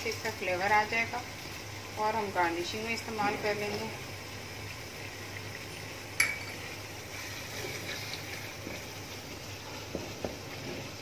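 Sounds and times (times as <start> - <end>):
masala sizzling in oil: 0.0 - 11.0
wooden spatula stirring: 9.6 - 11.0.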